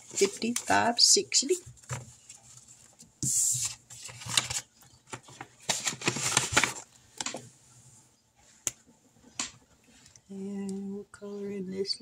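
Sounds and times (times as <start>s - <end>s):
paper bills rustling: 0.0s - 1.0s.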